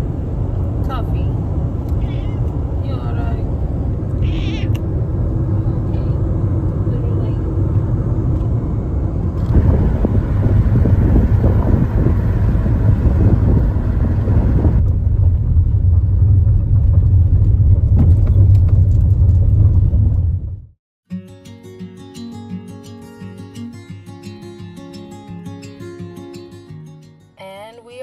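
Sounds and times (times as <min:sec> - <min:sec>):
car interior driving rumble: 0:00.0 - 0:20.8.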